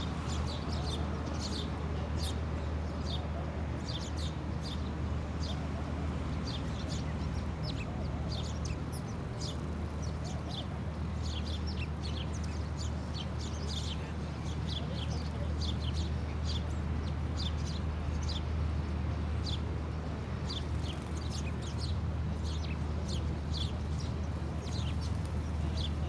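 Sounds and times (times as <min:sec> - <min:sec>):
small birds chirping: 0:06.5 - 0:16.7, 0:20.5 - 0:26.0.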